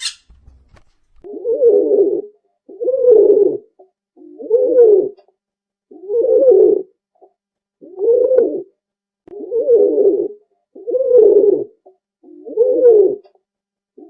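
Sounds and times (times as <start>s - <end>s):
pigeon cooing: 1.2s - 5.2s, 5.9s - 7.0s, 7.8s - 8.7s, 9.3s - 13.2s.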